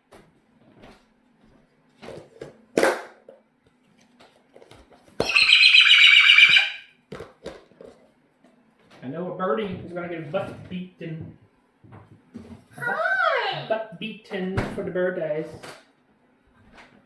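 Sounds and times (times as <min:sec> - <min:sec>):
bird harsh pulsing call: 0:05.2 - 0:06.8.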